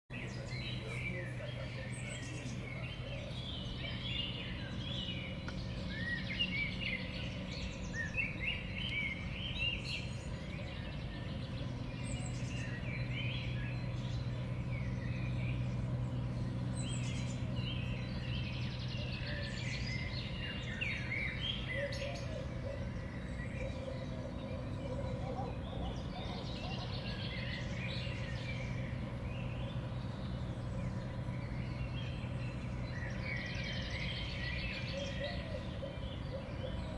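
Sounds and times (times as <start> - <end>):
songbirds chirping and calling: 0.1 - 36.9
steady low hum: 0.1 - 36.9.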